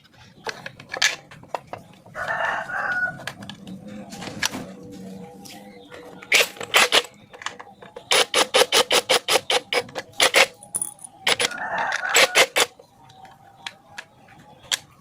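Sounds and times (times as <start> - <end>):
metal tools tapping and clinking: 10.1 - 11.5.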